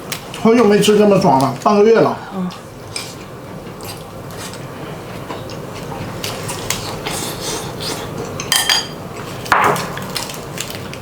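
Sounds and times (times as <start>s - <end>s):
utensils clinking on plates: 7.1s - 9.0s.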